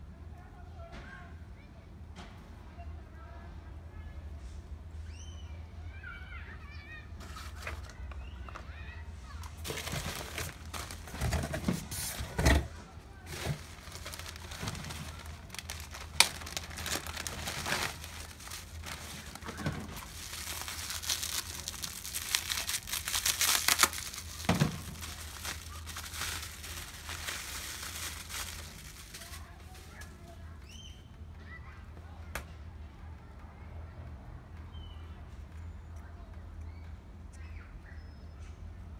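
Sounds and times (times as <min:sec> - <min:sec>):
packaging crinkling and rustling: 0:07.2 - 0:08.6, 0:09.4 - 0:30.4.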